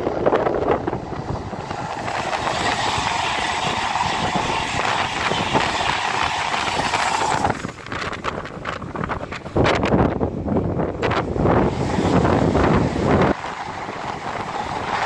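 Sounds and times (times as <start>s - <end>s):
electric train hum: 0.0s - 15.0s
train wheels rumbling on rail: 0.0s - 15.0s.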